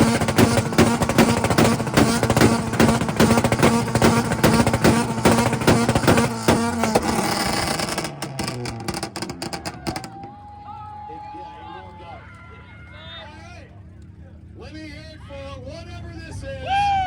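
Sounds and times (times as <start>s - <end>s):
rhythmic exhaust popping: 0.0s - 10.3s
car engine on launch limiter: 0.0s - 10.5s.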